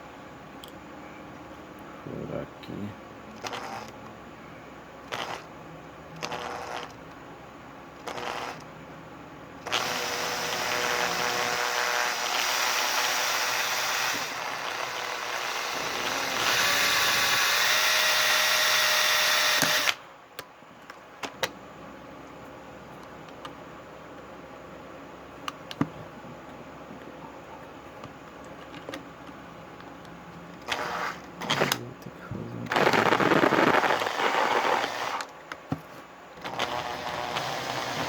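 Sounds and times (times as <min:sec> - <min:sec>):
electric drill driving a screw: 0:03.4 - 0:03.9, 0:05.1 - 0:05.5, 0:06.2 - 0:07.0, 0:08.1 - 0:08.6, 0:09.7 - 0:20.0, 0:30.7 - 0:31.8, 0:32.7 - 0:35.3, 0:36.4 - 0:38.0.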